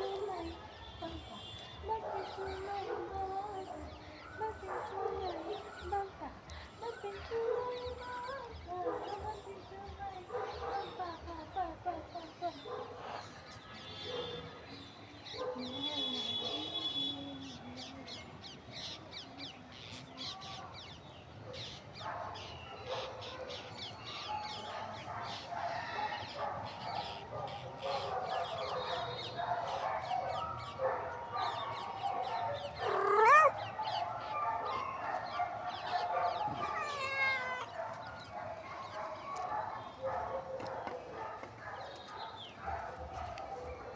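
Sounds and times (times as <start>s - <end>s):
animals clucking calls: 30.6s - 43.9s.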